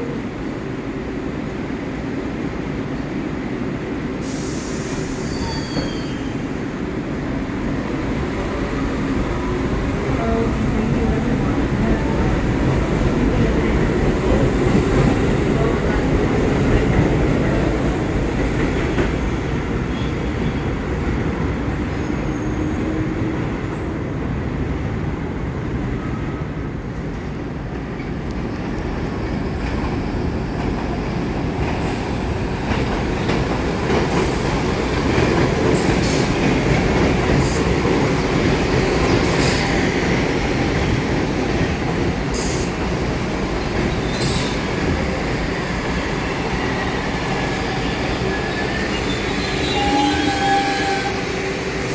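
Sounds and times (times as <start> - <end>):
subway train rumbling: 0.0 - 51.9
wheel squeal: 5.2 - 6.3.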